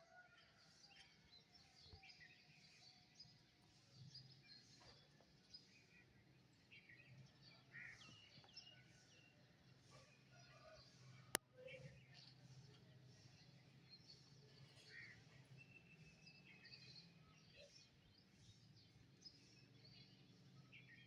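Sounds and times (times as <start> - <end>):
birds singing and chirping: 0.9 - 21.0.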